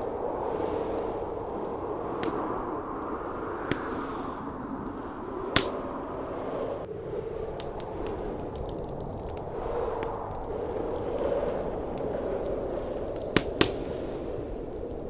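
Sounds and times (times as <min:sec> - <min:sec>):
sharp pops from fire: 0:00.0 - 0:06.5, 0:07.2 - 0:15.0
blizzard wind blowing: 0:00.0 - 0:15.0
wood fire crackling: 0:00.0 - 0:15.0.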